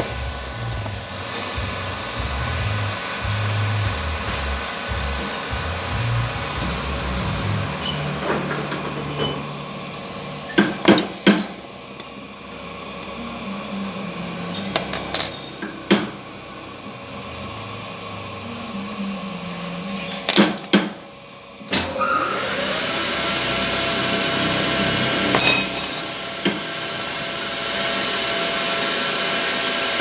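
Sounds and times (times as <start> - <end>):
low steady hum: 23.2 - 28.3
metal knocks and clinks: 25.3 - 26.2.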